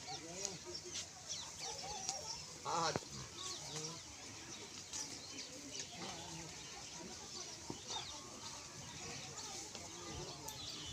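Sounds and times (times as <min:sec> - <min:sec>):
farmyard background: 0:00.0 - 0:10.9.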